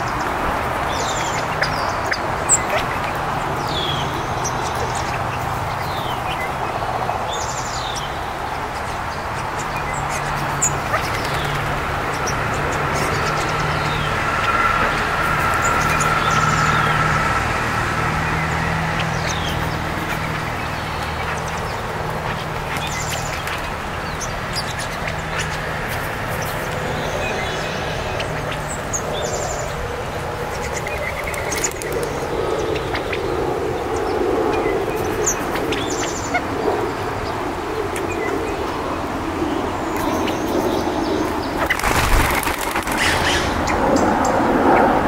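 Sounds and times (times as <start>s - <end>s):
small birds chirping: 0.0s - 45.0s
wing whirring of birds flying off: 40.0s - 45.0s.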